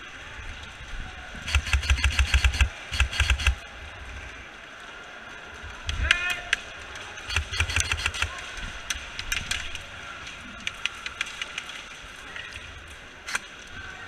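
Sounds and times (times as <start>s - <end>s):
airsoft guns firing: 1.5s - 3.6s, 7.3s - 8.5s.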